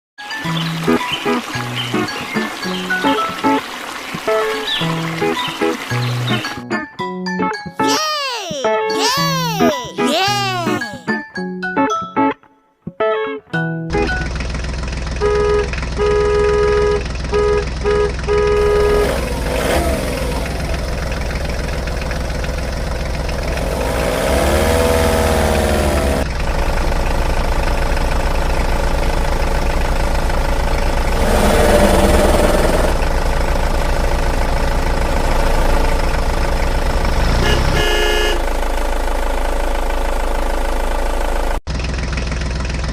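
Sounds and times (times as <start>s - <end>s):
cartoon vehicle engine running: 13.9s - 42.9s
short horn toots: 37.3s - 38.5s.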